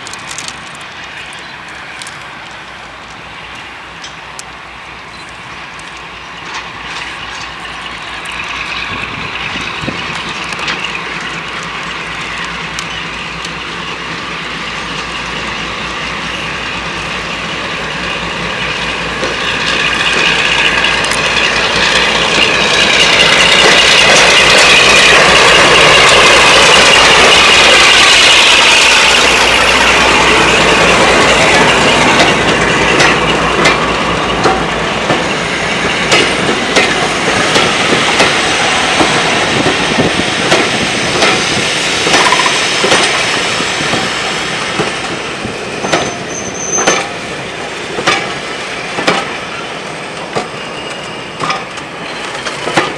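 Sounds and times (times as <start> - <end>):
train wheels clattering over rails: 0.0 - 52.9.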